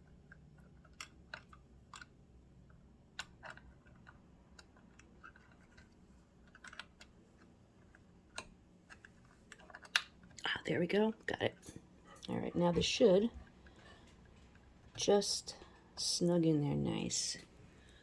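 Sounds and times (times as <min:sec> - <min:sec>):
small metal clicks and scrapes: 0:00.0 - 0:10.4.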